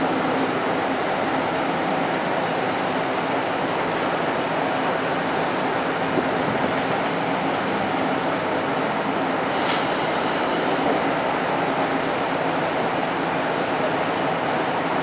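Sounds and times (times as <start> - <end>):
railcar engine and running noise: 0.0 - 15.0
brief high-pitched hiss: 9.5 - 10.8.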